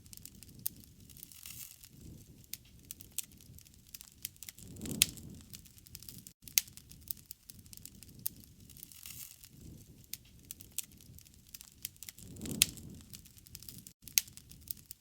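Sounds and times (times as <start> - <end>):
fire popping: 0.0 - 15.0
low rumble of flames: 0.0 - 15.0
wood fire crackling: 0.0 - 15.0.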